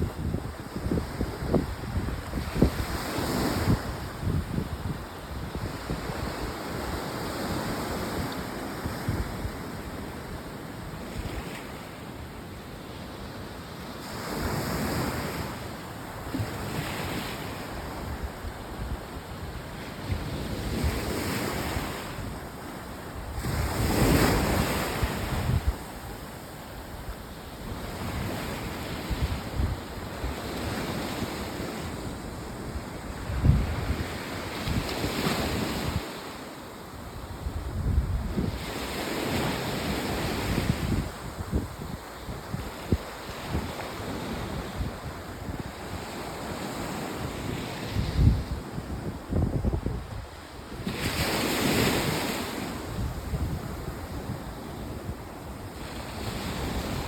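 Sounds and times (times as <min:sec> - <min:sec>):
wind rumbling on microphone: 0:00.0 - 0:09.9, 0:23.1 - 0:36.1, 0:37.2 - 0:57.0.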